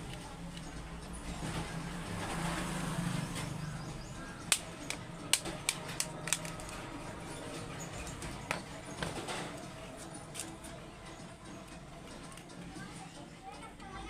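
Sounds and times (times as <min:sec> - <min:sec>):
sharp clicks: 0:04.4 - 0:06.8.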